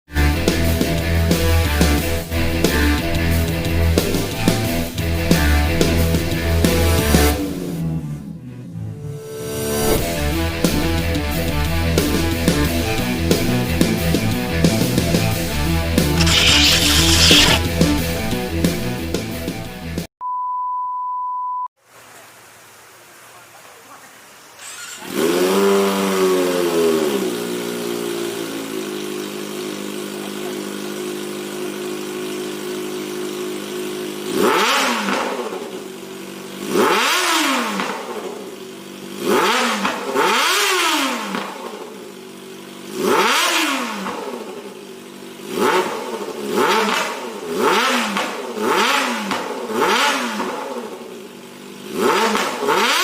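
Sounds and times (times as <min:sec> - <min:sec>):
motorcycle engine starting and idling: 0:16.0 - 0:17.9, 0:24.6 - 0:53.0
high-pitched engine revving: 0:16.2 - 0:17.8, 0:24.6 - 0:27.9, 0:34.3 - 0:35.7, 0:36.6 - 0:38.5, 0:39.1 - 0:41.8, 0:42.9 - 0:44.7, 0:45.4 - 0:51.0, 0:51.8 - 0:53.0.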